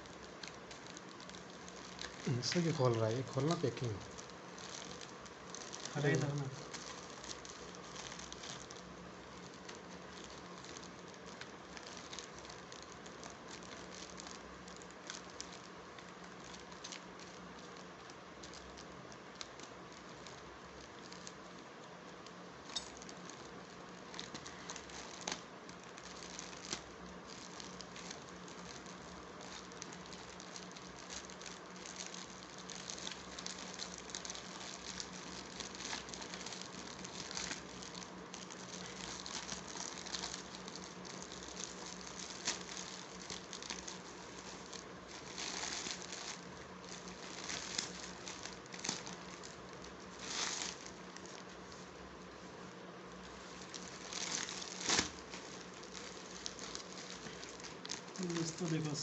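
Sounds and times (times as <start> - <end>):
faint steady hum: 0.0 - 59.0
packaging rustling and crinkling: 0.0 - 59.0
small clicks and snaps: 3.4 - 44.0.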